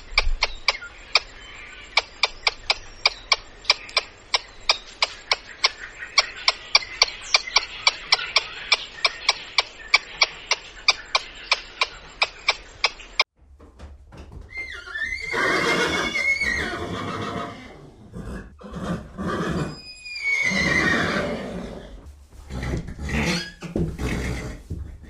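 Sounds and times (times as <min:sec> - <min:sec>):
horse neighing: 0:14.6 - 0:24.7.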